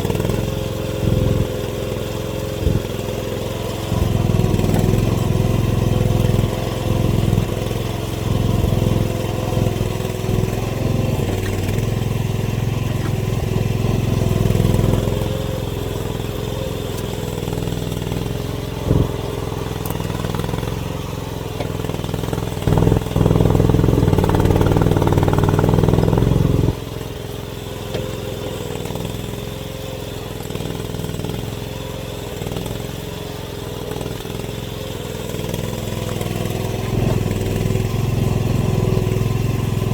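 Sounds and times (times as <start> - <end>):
excavator engine working: 0.0 - 39.9.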